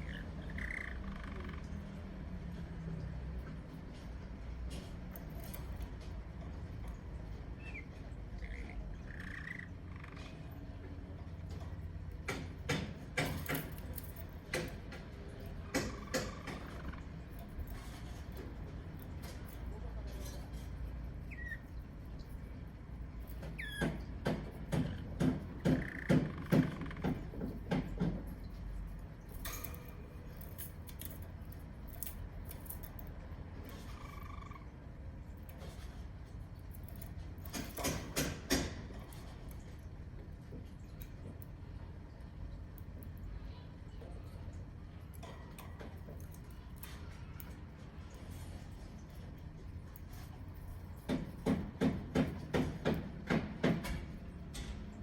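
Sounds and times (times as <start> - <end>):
canary chirping: 0.0 - 1.8, 7.5 - 10.4, 21.1 - 22.5, 23.3 - 24.0, 33.7 - 34.8
canary pecking seeds: 11.5 - 43.2, 45.1 - 54.2.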